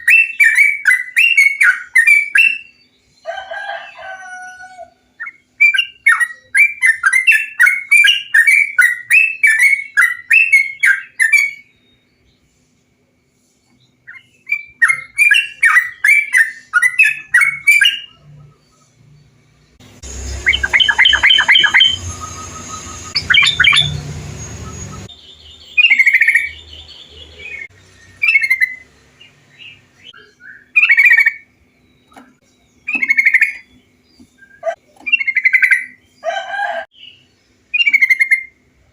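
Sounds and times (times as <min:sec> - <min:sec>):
bird chattering song: 0:05.1 - 0:12.5, 0:13.6 - 0:19.0, 0:19.6 - 0:36.3, 0:37.0 - 0:38.6
low hum: 0:18.1 - 0:25.2.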